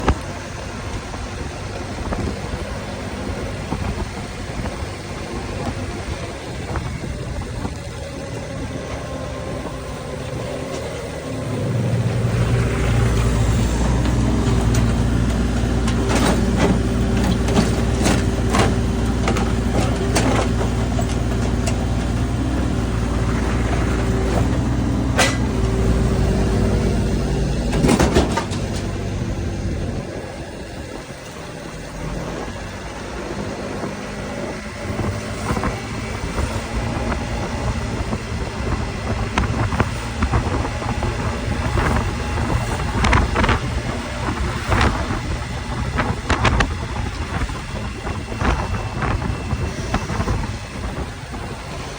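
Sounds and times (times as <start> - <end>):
heavy diesel engine running: 0.0 - 51.9
metal knocks and clanks: 23.6 - 25.8, 27.6 - 29.2.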